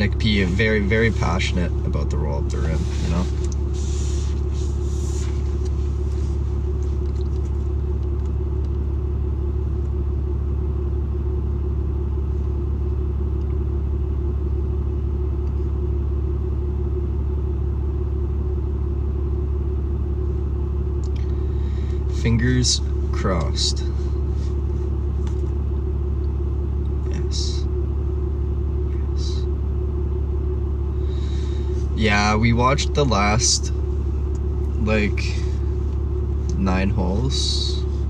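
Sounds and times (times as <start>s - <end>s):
truck engine rumbling: 0.0s - 38.0s.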